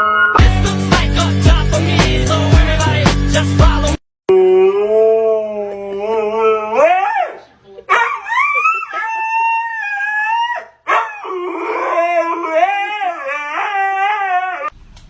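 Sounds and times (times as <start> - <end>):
dog howling: 4.3 - 14.7.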